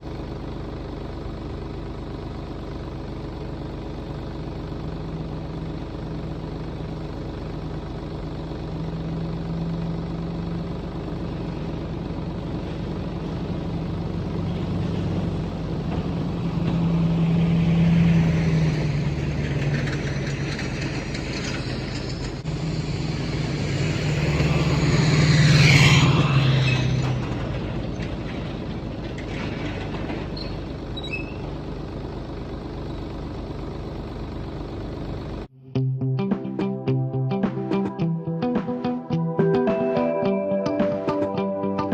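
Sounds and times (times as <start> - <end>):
vehicle engine humming: 0.0 - 41.9
rush of noise: 20.6 - 27.7.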